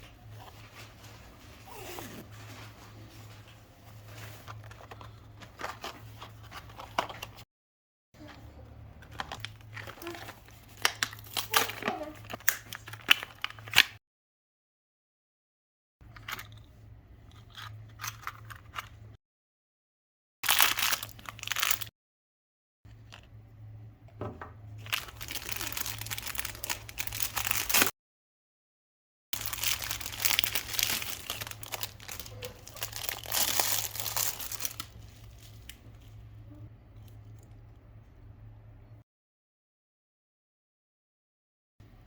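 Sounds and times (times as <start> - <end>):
plastic packaging crinkling and tearing: 9.1 - 14.0, 20.4 - 21.9, 24.8 - 27.9, 29.4 - 36.1
faint low hum: 29.4 - 39.0.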